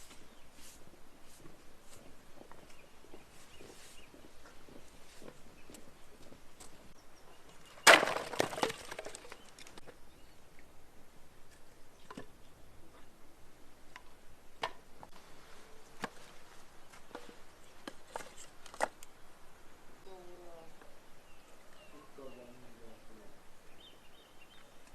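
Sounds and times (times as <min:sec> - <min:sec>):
firewood cracking and splintering: 0:07.7 - 0:09.8.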